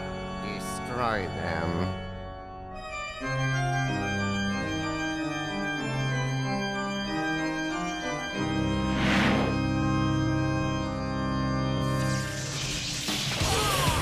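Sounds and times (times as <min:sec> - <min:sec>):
dramatic organ chords: 0:00.0 - 0:12.4
noisy whoosh: 0:08.9 - 0:09.7.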